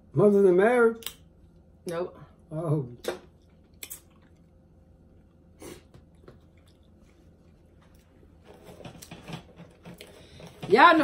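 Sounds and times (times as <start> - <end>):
faint chewing: 3.4 - 8.4.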